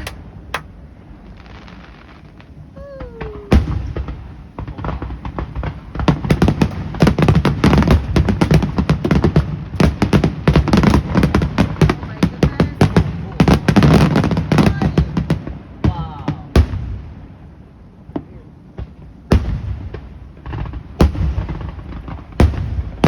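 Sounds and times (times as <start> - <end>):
fireworks boom: 0.0 - 13.0
fireworks bangs and crackles: 0.0 - 23.0.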